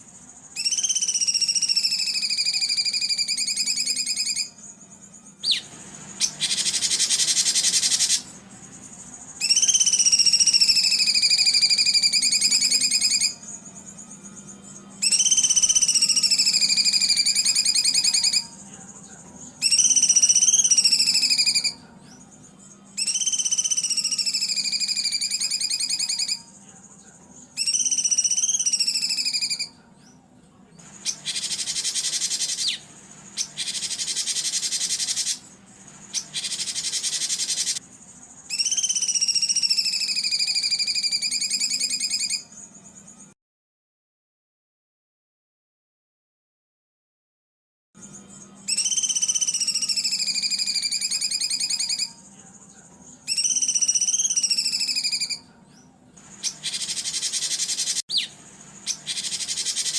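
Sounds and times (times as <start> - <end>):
songbird trills: 0.0 - 43.3, 48.0 - 59.9
harsh rasping bird calls: 0.6 - 18.8, 19.4 - 22.4, 23.0 - 26.6, 30.8 - 42.6, 48.1 - 52.3, 53.3 - 59.9.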